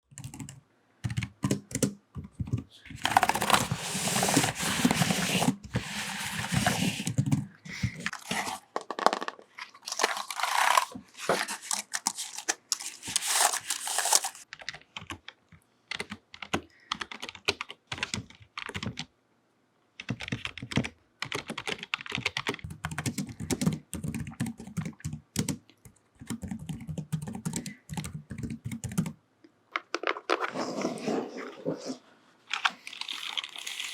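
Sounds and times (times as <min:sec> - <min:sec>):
fingernails typing on keyboard: 0:00.1 - 0:05.2, 0:06.4 - 0:08.1, 0:14.4 - 0:19.1, 0:20.0 - 0:29.2.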